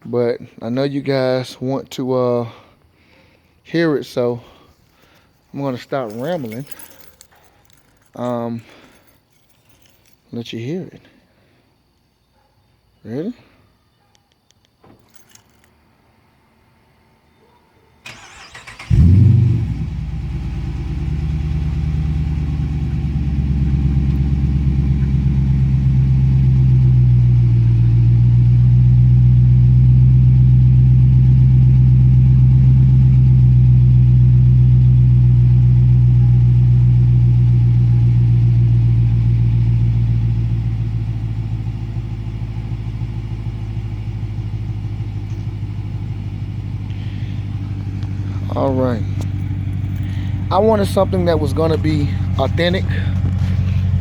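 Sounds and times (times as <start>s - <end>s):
car engine cranking and idling: 18.1s - 54.0s.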